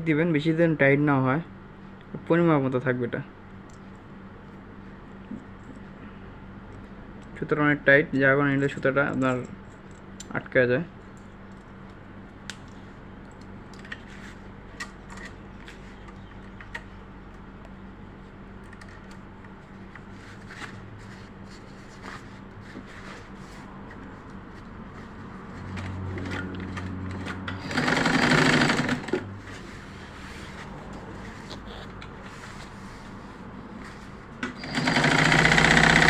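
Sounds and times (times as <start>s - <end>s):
sewing machine running: 26.3s - 29.3s, 34.6s - 36.0s.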